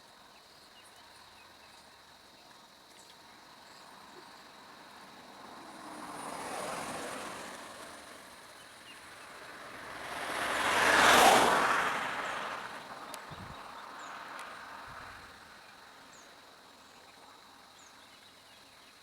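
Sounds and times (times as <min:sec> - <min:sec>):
vehicles driving past: 0:03.9 - 0:16.2.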